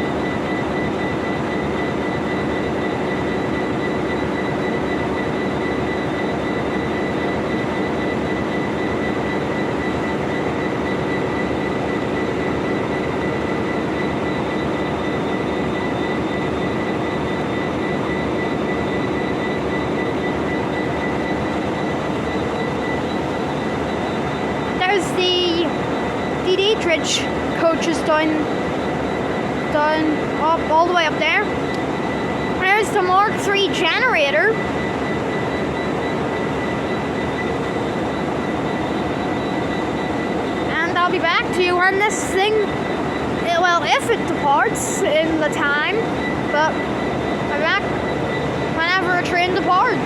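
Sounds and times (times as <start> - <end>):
constant high whine: 0.0 - 50.0
diesel engine idling: 19.8 - 35.5.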